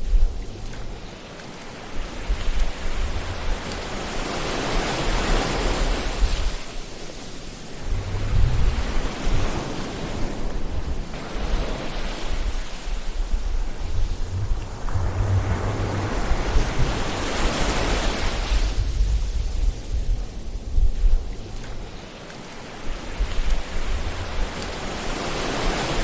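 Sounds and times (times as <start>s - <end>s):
ocean waves on shore: 0.0s - 26.0s
low rumble: 7.8s - 9.4s, 12.4s - 22.0s.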